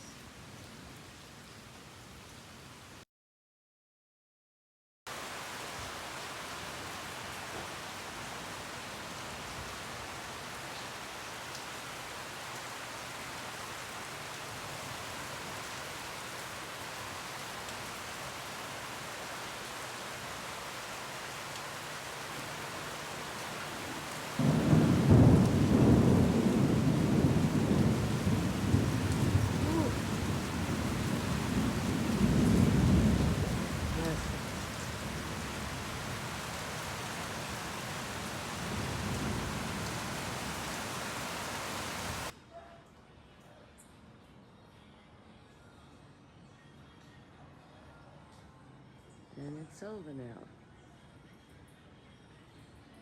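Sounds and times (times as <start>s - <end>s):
steady rain: 0.0s - 3.0s, 5.1s - 42.4s
thunder rumbling: 24.4s - 36.6s, 37.3s - 41.0s.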